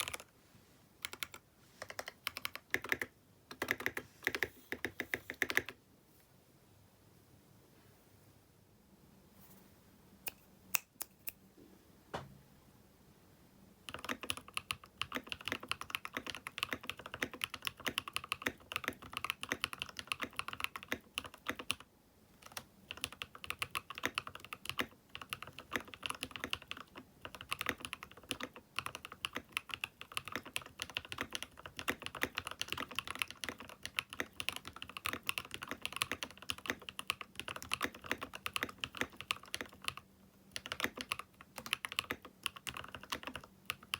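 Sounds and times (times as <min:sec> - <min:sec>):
mechanical keyboard typing: 0:00.0 - 0:00.3, 0:01.0 - 0:05.8, 0:13.8 - 0:43.9.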